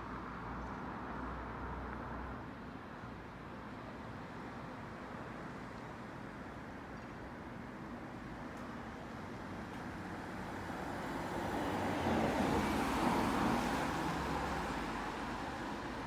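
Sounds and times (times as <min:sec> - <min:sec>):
car passing by: 0:10.4 - 0:16.0.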